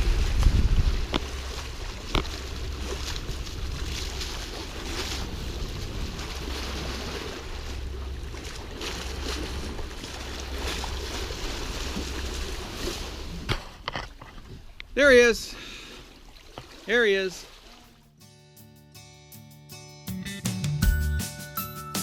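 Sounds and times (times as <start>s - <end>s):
wind buffeting microphone: 0.0s - 13.5s
rushing sea water: 0.0s - 18.1s.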